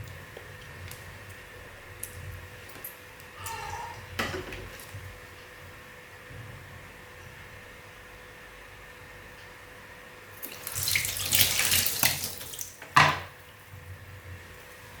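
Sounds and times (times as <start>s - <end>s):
water running and splashing: 10.4s - 12.8s.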